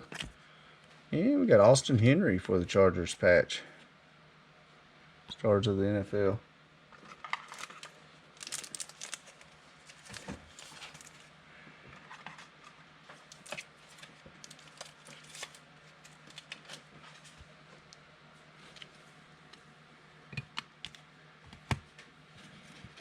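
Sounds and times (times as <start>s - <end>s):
crinkling of card packs: 7.0s - 11.4s, 12.0s - 17.9s.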